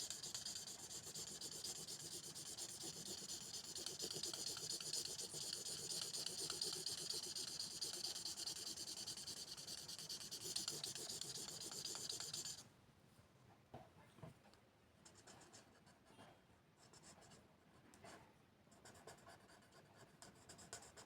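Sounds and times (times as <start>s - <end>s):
scratching strokes on paper: 0.0s - 12.6s, 16.8s - 21.0s.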